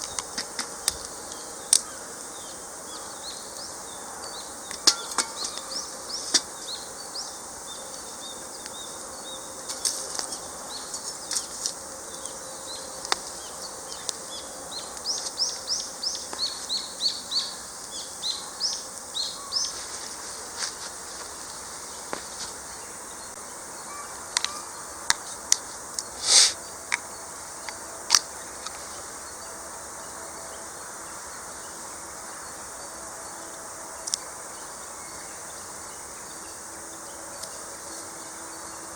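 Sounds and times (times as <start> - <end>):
faint steady hiss: 0.0 - 38.9
small birds chirping: 0.0 - 38.9
sharp clicks and pops: 26.9 - 28.8.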